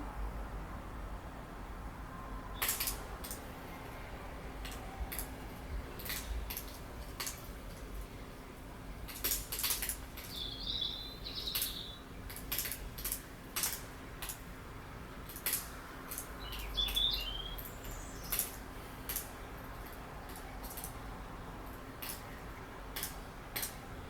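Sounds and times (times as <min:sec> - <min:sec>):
sharp ticks and clicks: 0:09.1 - 0:10.5, 0:11.4 - 0:14.4, 0:15.2 - 0:17.0, 0:17.6 - 0:21.0
bird chirping: 0:10.2 - 0:12.2, 0:16.4 - 0:18.5.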